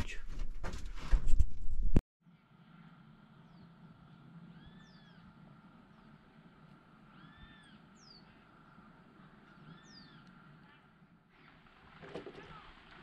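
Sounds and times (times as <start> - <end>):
faint bird calls: 2.7 - 6.2, 6.8 - 11.6.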